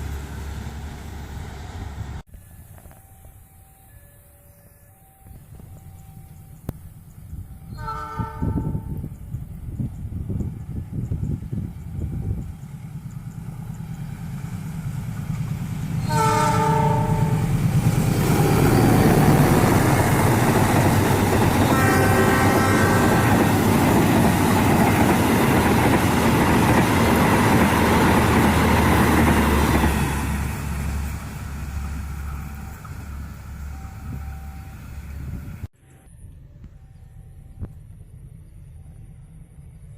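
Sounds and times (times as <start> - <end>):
train wheels and cars passing: 0.0 - 39.9
locomotive horn: 7.7 - 9.0, 16.0 - 17.6, 21.3 - 23.6.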